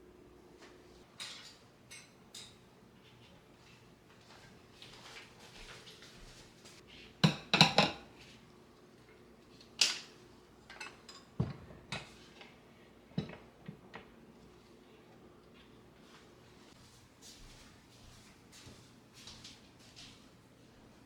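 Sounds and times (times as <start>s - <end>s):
kitchenware clinking and knocking: 7.2s - 8.1s, 10.7s - 12.3s.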